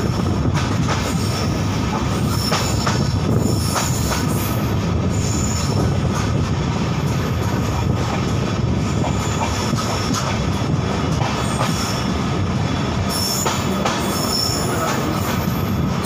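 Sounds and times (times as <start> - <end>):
rail clicks: 0.0 - 16.0
train wheels rumbling on track: 0.0 - 16.0
high wheel squeals: 13.1 - 15.8.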